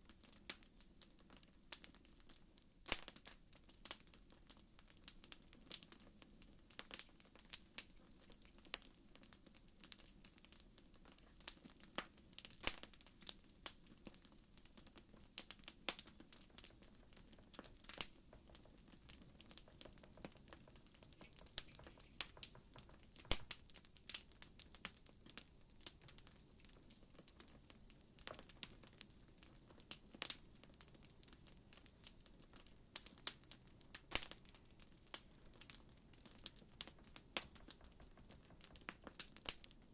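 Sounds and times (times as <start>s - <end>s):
wood fire crackling: 0.0s - 39.9s
low hiss: 21.0s - 24.7s.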